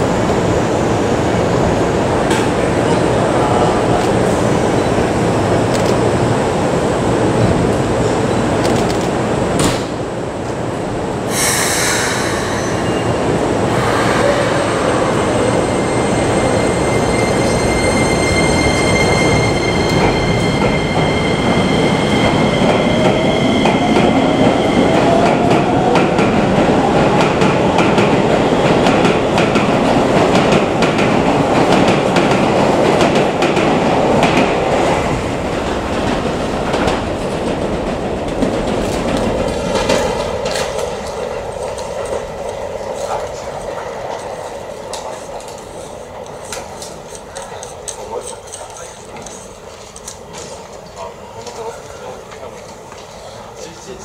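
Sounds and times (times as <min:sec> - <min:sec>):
train wheels rumbling on rails: 0:00.0 - 0:54.0
high steady tones: 0:11.5 - 0:25.0.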